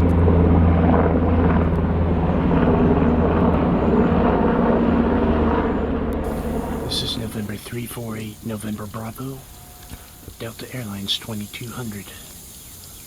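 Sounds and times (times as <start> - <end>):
low hum: 0.0 - 9.9
jet airliner rumble: 0.0 - 13.0.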